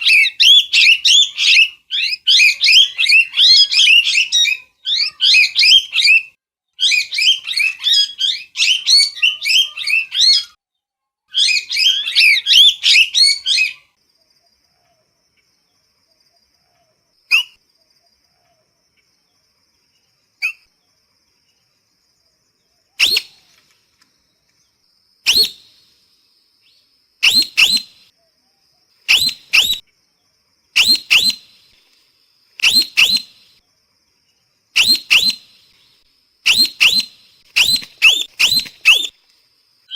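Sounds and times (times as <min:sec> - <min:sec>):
parrot calling: 0:00.0 - 0:10.5, 0:29.1 - 0:29.8, 0:30.8 - 0:31.4, 0:32.6 - 0:33.4, 0:34.8 - 0:35.4, 0:36.5 - 0:39.1.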